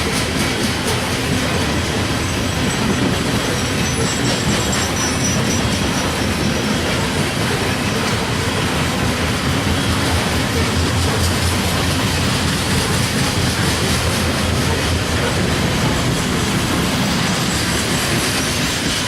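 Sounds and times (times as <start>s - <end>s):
train wheels rumbling on rails: 0.0s - 19.0s
high wheel squeal: 2.2s - 7.2s.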